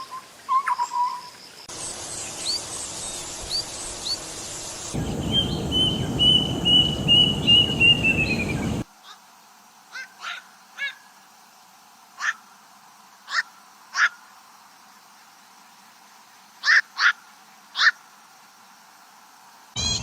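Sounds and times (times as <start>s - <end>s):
harsh bird calls: 5.0s - 8.8s
songbird whistled note: 5.0s - 8.8s.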